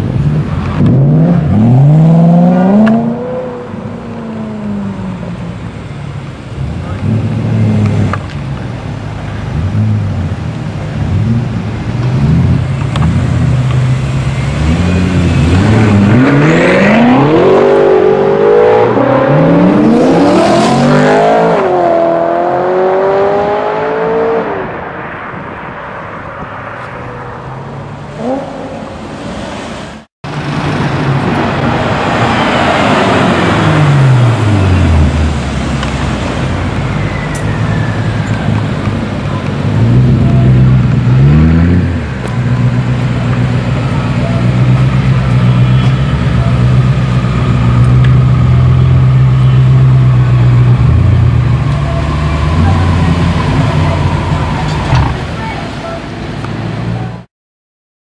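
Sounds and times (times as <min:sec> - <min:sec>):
car engine accelerating hard: 0:11.0 - 0:24.8.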